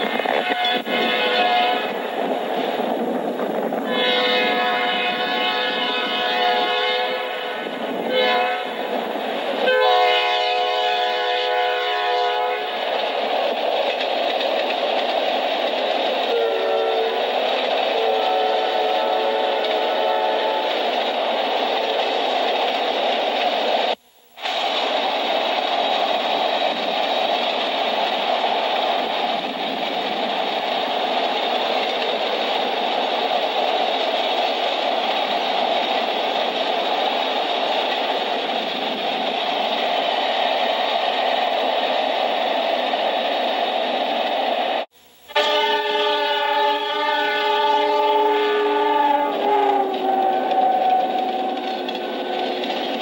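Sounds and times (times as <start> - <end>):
freight train wheels rumbling: 0.0 - 53.0
locomotive air horn chord: 0.4 - 2.0, 3.9 - 8.8, 9.6 - 12.8, 16.3 - 17.2, 18.0 - 20.7, 45.2 - 52.6.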